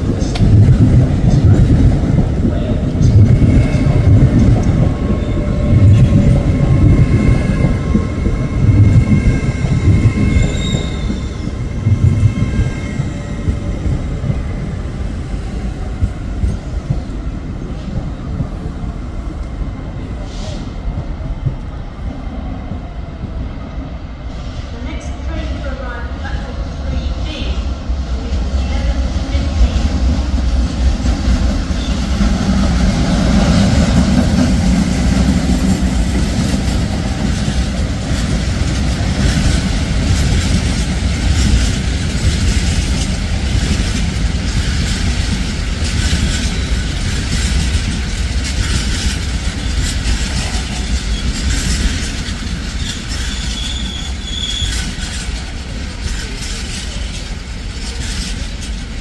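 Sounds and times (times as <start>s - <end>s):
train rumble: 0.0s - 59.0s
high wheel squeal: 10.2s - 11.6s, 52.7s - 55.2s
train wheels clattering over rail joints: 30.9s - 59.0s.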